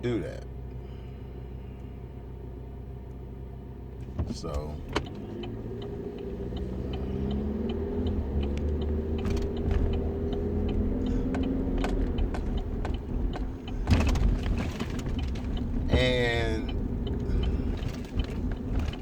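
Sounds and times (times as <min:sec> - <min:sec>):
motor vehicle rumble: 0:00.0 - 0:19.0
faint regular clicks: 0:04.5 - 0:15.9.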